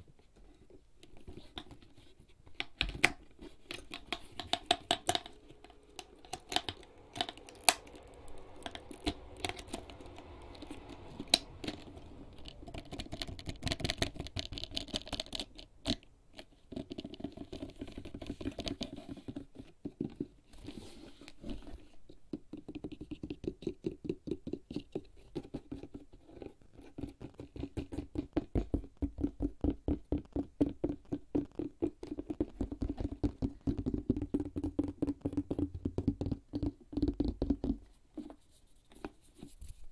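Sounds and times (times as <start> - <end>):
fingertips tapping on leather bag: 26.8 - 37.9.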